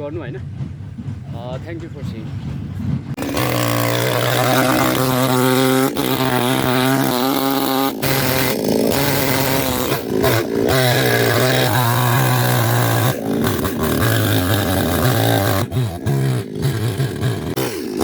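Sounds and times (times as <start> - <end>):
chainsaw cutting roots: 3.2 - 18.0.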